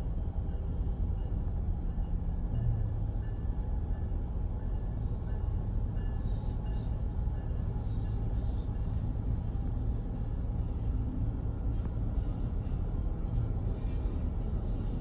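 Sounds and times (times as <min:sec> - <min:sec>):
train low rumble: 0:00.0 - 0:15.0
hiss of wheels on rail: 0:03.0 - 0:15.0.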